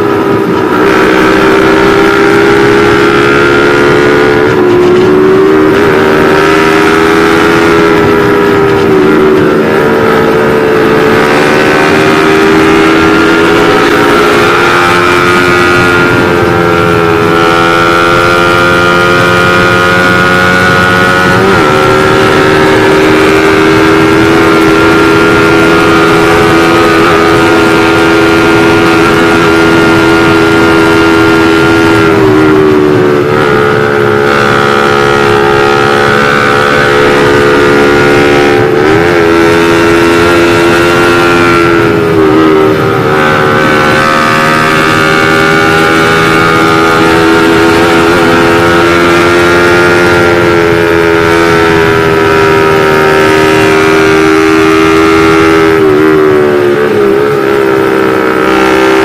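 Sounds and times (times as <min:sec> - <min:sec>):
motorcycle engine at high revs: 0:00.0 - 0:59.0.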